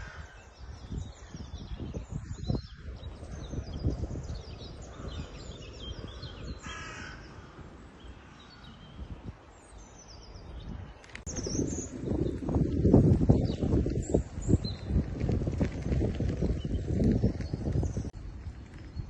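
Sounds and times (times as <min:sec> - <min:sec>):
crow cawing: 0:00.0 - 0:00.4, 0:06.6 - 0:08.6
small birds chirping: 0:00.0 - 0:19.0.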